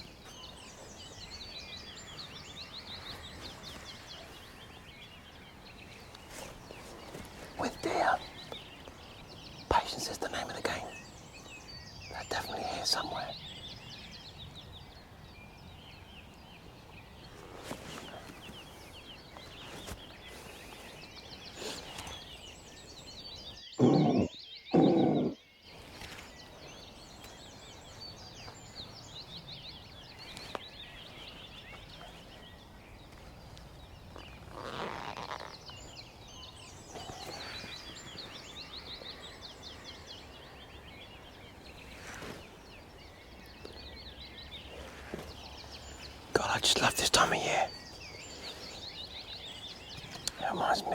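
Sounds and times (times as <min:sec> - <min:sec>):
faint birdsong: 0:00.0 - 0:50.9
deep grunting deer call: 0:23.8 - 0:25.4.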